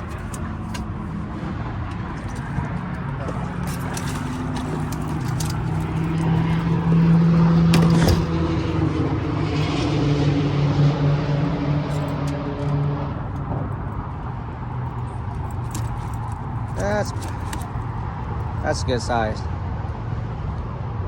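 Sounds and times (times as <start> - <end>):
boat motor running: 0.0 - 14.2, 14.8 - 18.6.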